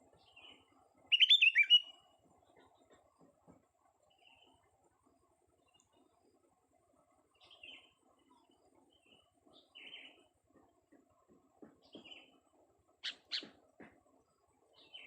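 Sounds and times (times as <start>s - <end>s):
bird faint chirps: 0.3s - 2.0s.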